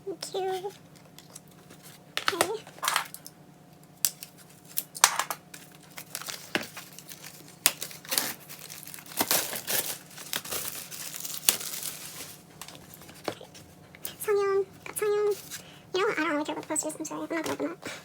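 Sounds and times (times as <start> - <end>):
paper packaging crinkling: 4.2 - 13.8.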